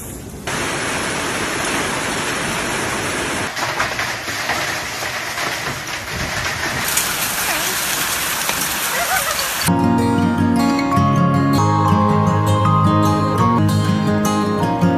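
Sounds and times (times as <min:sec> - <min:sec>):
hail and rain pelting: 0:00.5 - 0:09.7.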